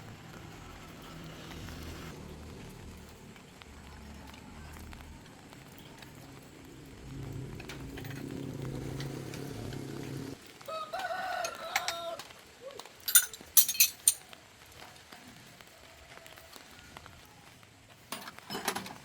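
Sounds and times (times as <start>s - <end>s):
low steady rumble: 0.0s - 10.4s
rooster crowing: 10.6s - 12.3s.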